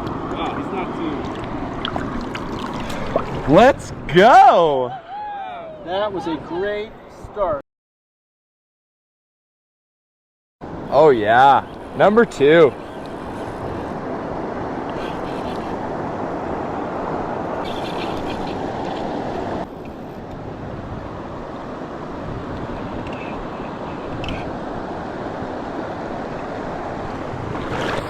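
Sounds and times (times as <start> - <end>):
river water rushing: 0.0 - 4.7, 10.7 - 28.0
wind buffeting microphone: 10.7 - 28.0.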